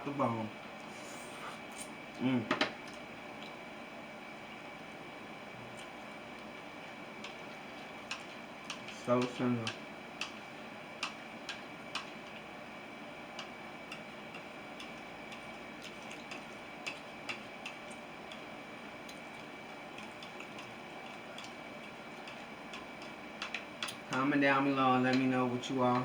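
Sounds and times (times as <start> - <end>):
mouth chewing food: 13.4 - 24.1.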